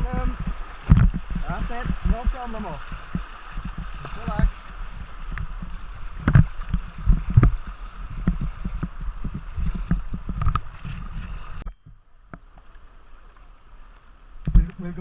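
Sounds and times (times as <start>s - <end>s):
rushing water: 0.0s - 11.6s
thumps and splashes against hull: 0.0s - 12.7s.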